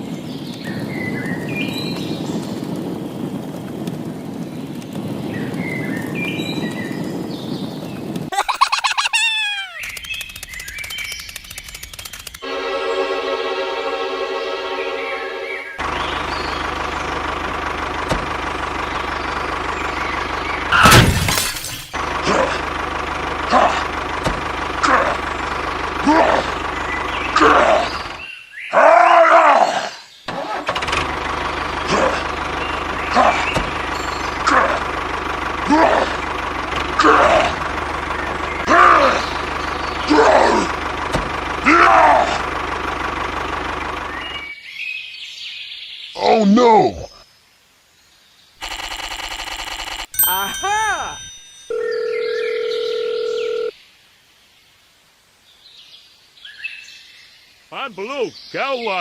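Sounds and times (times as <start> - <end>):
rising and falling call: 8.3 - 10.0
faint high chirping: 8.4 - 10.0
low engine chugging hum: 15.8 - 20.8, 22.0 - 28.2, 30.9 - 44.5.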